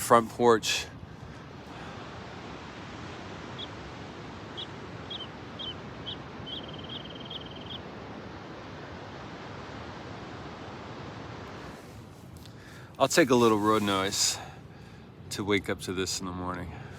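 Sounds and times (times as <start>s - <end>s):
road noise: 0.0s - 16.9s
small bird chirping and trilling: 4.5s - 7.8s.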